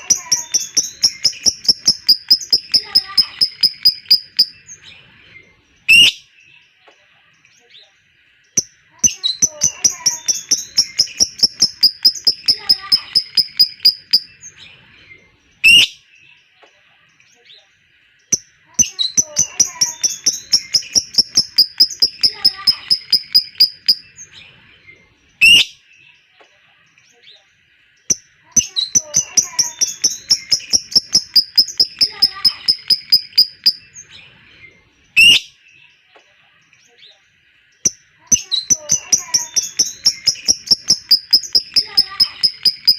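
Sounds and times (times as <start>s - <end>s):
lovebird chattering trill: 0.0s - 4.8s, 8.6s - 14.4s, 18.4s - 24.2s, 28.1s - 34.0s, 37.9s - 42.9s.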